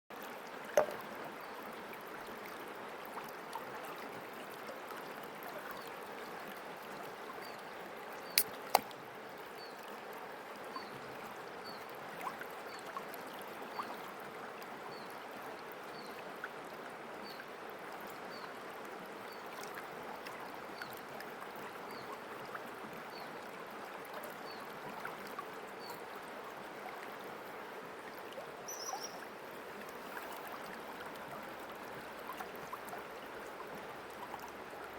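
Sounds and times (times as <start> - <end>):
river water running: 0.1 - 34.9
faint high chirp: 28.7 - 29.2.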